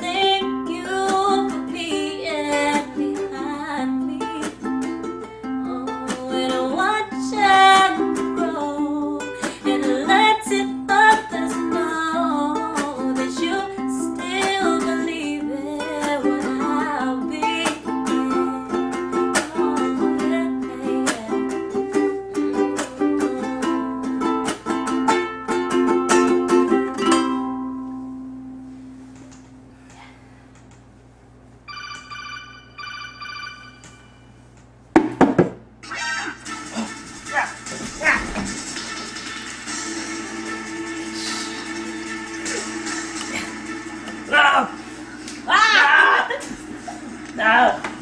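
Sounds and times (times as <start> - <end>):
ukulele strummed: 0.0 - 29.1, 36.2 - 45.4.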